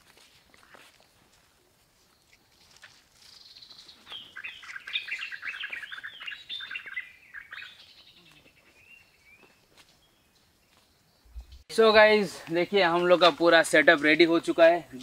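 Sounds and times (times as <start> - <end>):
songbird singing: 2.0 - 15.0.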